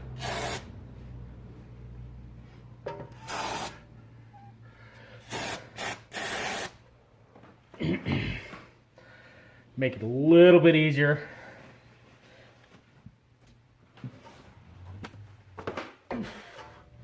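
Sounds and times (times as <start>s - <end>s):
aerosol spray hissing bursts: 0.2s - 0.7s, 3.3s - 3.8s, 5.3s - 6.8s.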